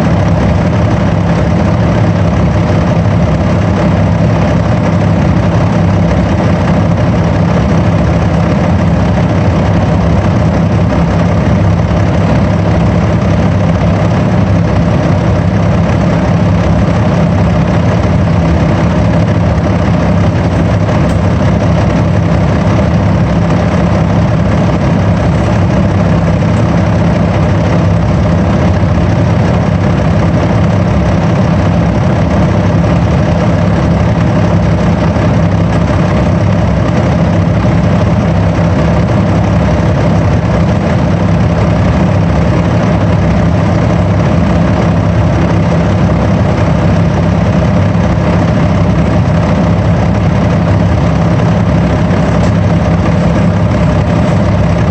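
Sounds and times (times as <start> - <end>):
bus engine droning: 0.0 - 54.9.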